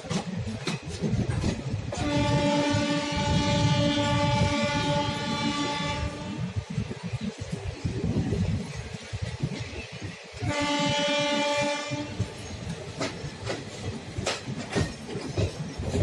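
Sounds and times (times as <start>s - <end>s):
train wheels clattering over rails: 0.0s - 16.0s
locomotive horn blast: 2.0s - 6.6s, 10.4s - 12.4s.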